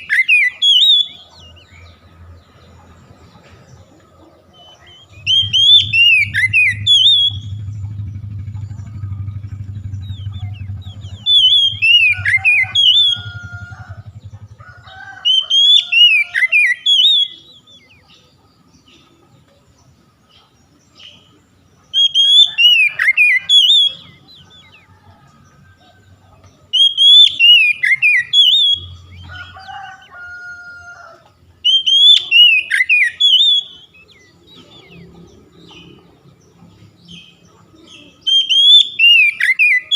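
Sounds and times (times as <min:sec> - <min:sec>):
bird singing whistled notes: 0:00.0 - 0:02.0, 0:04.6 - 0:14.6, 0:15.2 - 0:18.1, 0:21.9 - 0:24.9, 0:26.7 - 0:29.6, 0:31.6 - 0:36.0, 0:37.1 - 0:39.9
low hum: 0:04.9 - 0:14.9.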